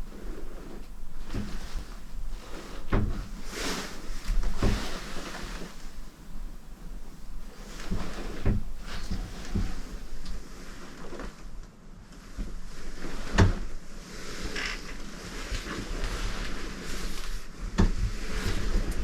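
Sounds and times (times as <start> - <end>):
dull knocks and bumps: 2.8 - 3.4, 7.8 - 10.0.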